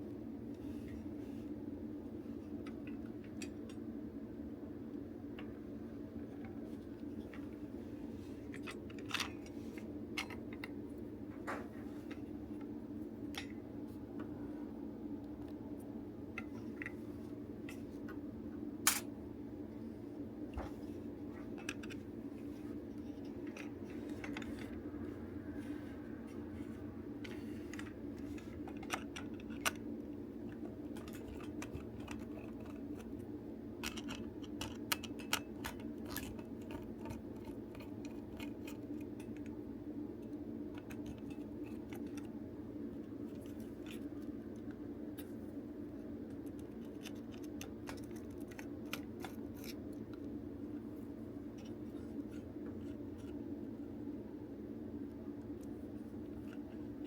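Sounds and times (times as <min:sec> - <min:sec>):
steady low hum: 0:00.0 - 0:57.0
plastic toy parts clicking and scraping: 0:08.4 - 0:10.8, 0:21.4 - 0:22.1, 0:23.0 - 0:24.8, 0:26.6 - 0:39.6, 0:40.2 - 0:42.3, 0:43.3 - 0:45.4, 0:46.0 - 0:50.4.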